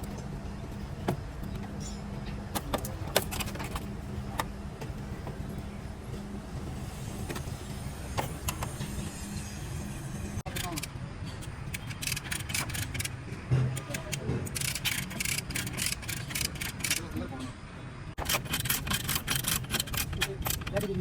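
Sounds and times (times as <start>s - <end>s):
steady low hum: 0.0s - 21.0s
sharp clicks and knocks: 10.5s - 17.4s, 18.2s - 21.0s.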